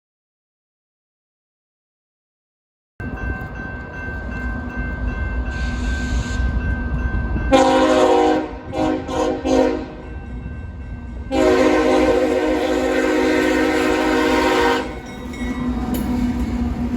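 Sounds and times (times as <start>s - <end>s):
locomotive rumble: 3.0s - 16.9s
train air horn: 7.5s - 10.0s, 11.3s - 15.0s.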